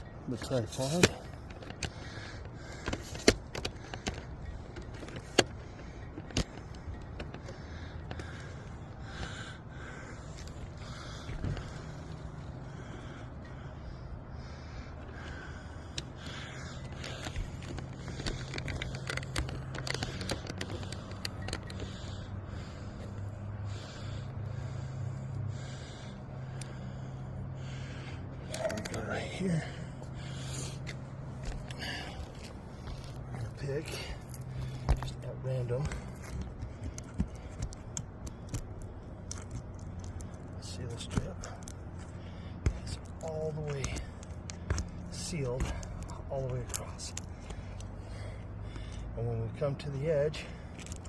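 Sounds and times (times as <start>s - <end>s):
low background rumble: 0.0s - 51.0s
low engine-like hum: 0.0s - 51.0s
sharp clicks and scuffs: 34.2s - 48.0s.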